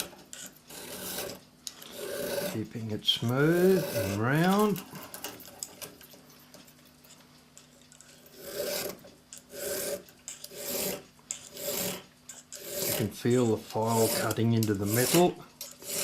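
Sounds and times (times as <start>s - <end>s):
file rasping on steel: 0.0s - 2.6s, 3.5s - 4.7s, 8.3s - 16.0s.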